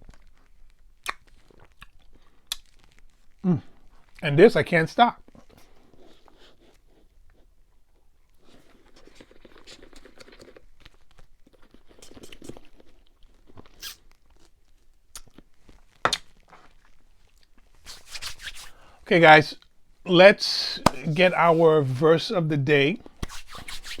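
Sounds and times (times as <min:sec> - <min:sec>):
eating and drinking mouth sounds: 0:00.0 - 0:04.2, 0:05.2 - 0:17.8.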